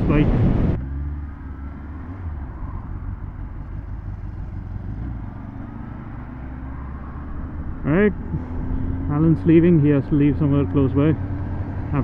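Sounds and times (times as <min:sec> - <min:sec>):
motorcycle engine idling: 0:01.2 - 0:10.8.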